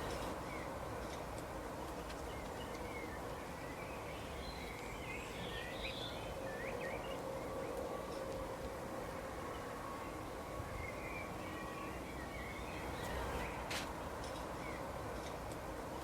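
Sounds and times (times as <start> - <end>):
small birds chirping: 1.8 - 7.9, 9.5 - 13.7.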